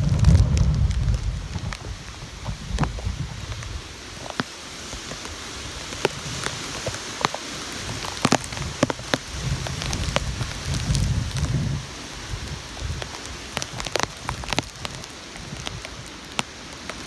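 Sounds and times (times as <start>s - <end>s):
low rumble: 0.0s - 3.6s
heavy rain falling: 0.0s - 17.0s.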